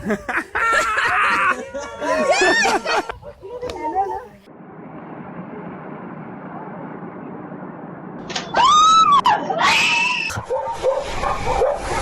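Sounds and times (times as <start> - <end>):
dogs barking: 10.4 - 12.0.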